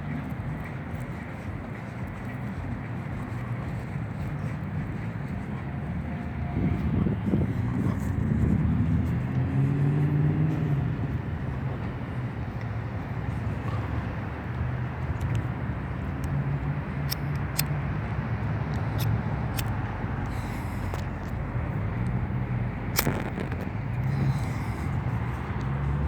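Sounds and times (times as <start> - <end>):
road noise: 0.0 - 26.0
vehicle engine hum: 0.0 - 26.0
sharp clicks: 17.0 - 25.8.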